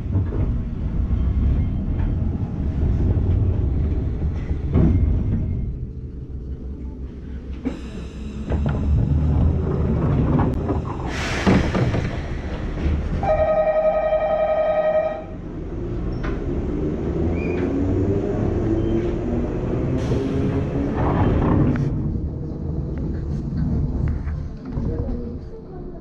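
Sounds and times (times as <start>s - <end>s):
train wheels rumbling on rails: 0.0s - 26.0s
train horn blast: 13.2s - 15.4s.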